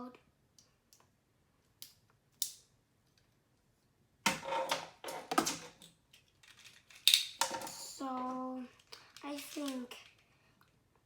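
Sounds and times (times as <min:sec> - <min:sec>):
plastic parts clicking and snapping: 0:05.1 - 0:07.7.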